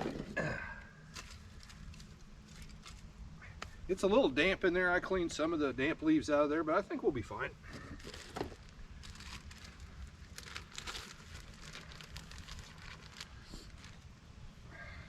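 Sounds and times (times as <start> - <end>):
kindling and dry leaves crinkling: 1.1 - 3.1, 7.7 - 14.2.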